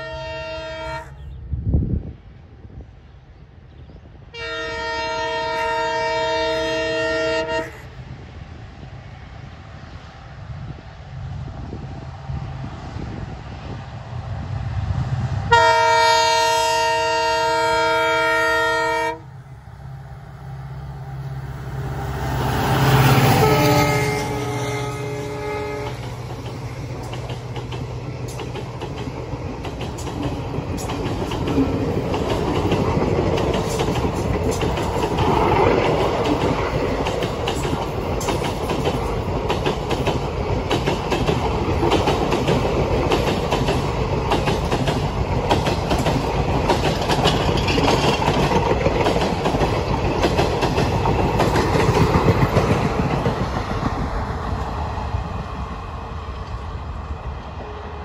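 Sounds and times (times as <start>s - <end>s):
train horn blast: 0.0s - 1.3s, 4.3s - 8.0s, 15.5s - 19.4s, 22.6s - 26.1s
train coaches rumbling: 0.0s - 58.0s
wheels clacking over rail joints: 22.4s - 54.8s.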